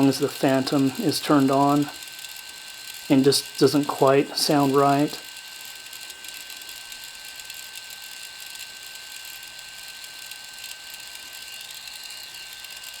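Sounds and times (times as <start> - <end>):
gimbal grinding chatter: 0.0 - 2.0, 3.1 - 5.2
constant high whine: 0.0 - 13.0.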